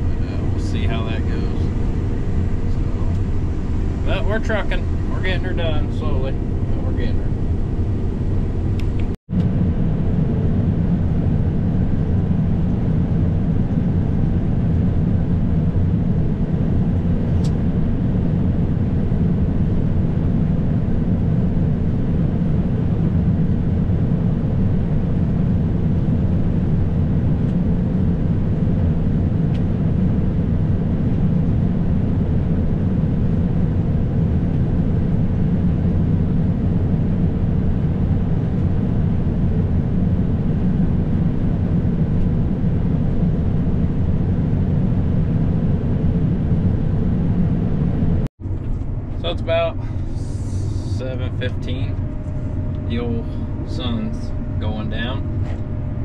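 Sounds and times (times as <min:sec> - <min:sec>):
combine harvester running: 0:00.0 - 0:09.6, 0:34.8 - 0:56.0.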